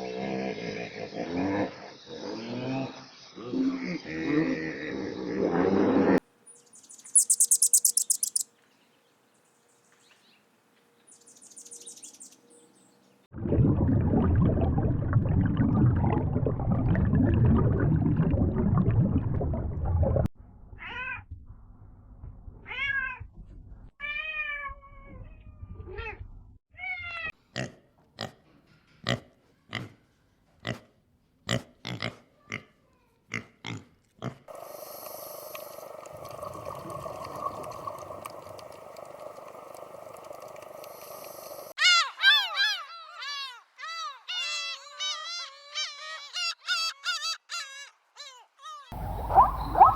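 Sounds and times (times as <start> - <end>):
short sharp calls: 7.1 - 8.4, 49.0 - 49.9
dense low rumbling noise: 49.0 - 49.9.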